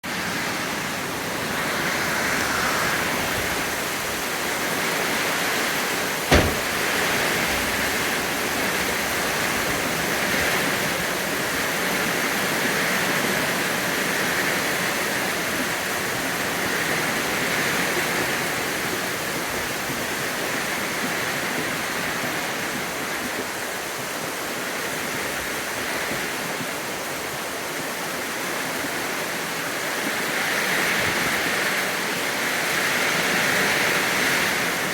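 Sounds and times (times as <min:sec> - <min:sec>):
steady rain falling: 0:00.0 - 0:34.9
sharp knock: 0:06.3 - 0:06.8.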